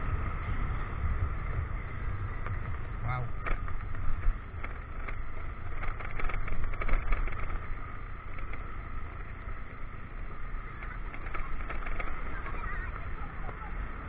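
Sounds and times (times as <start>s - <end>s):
motorcycle engine rumble: 0.0s - 14.0s
wind noise: 0.0s - 14.0s
knocks and rattles from bumps: 2.4s - 9.3s, 10.8s - 13.6s.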